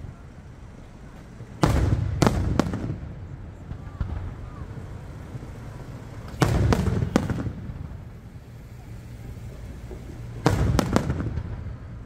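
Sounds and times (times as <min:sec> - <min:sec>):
low rolling rumble: 0:00.0 - 0:12.0
firework shells bursting: 0:06.2 - 0:11.9.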